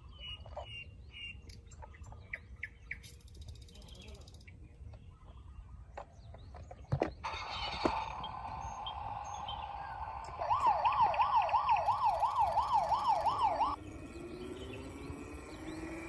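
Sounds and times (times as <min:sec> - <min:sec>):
electronic toy siren wailing: 0:07.2 - 0:13.8.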